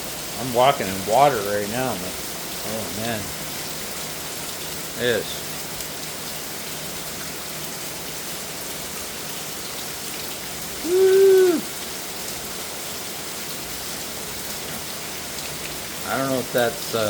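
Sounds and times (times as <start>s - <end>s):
heavy rain pouring: 0.0s - 17.0s
man shouting woo: 10.8s - 11.8s.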